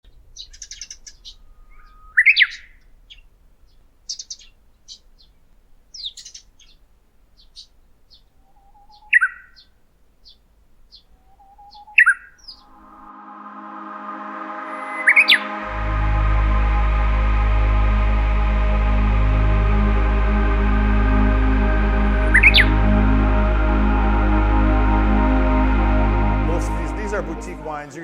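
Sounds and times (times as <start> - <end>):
bird song phrase: 0.0 - 6.8, 7.4 - 12.8
birds chirping: 0.0 - 13.1, 18.3 - 28.0.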